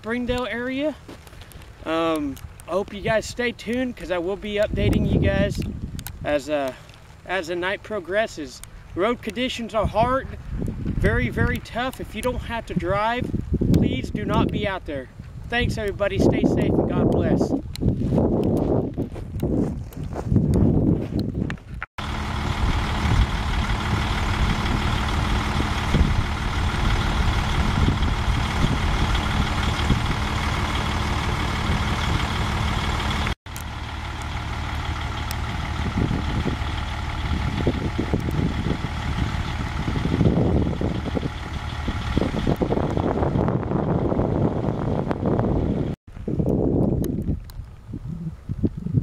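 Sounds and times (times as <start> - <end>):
motor vehicle droning hum: 20.3 - 49.0.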